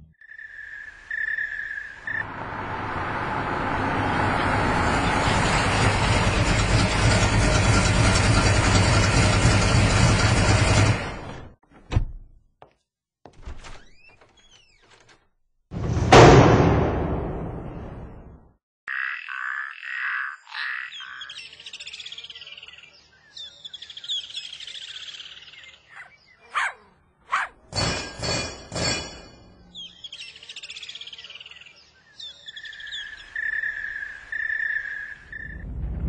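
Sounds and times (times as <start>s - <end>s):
birds chirping and singing: 18.9s - 27.5s, 29.6s - 35.6s.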